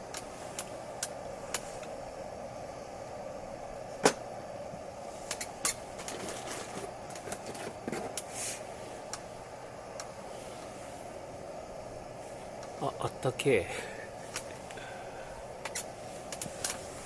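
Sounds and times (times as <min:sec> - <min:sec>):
campfire crackling: 0:00.0 - 0:17.0
steady background hiss: 0:00.0 - 0:17.0
sharp pops: 0:04.0 - 0:04.3.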